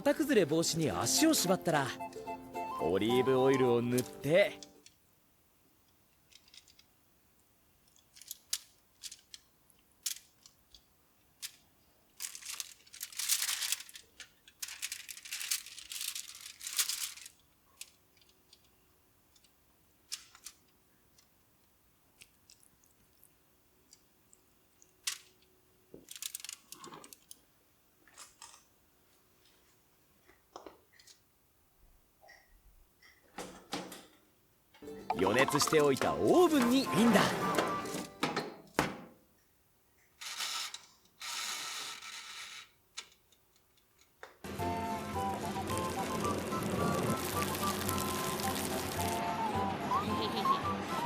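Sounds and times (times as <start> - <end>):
rustling and crinkling: 7.9 - 21.4, 22.2 - 31.2.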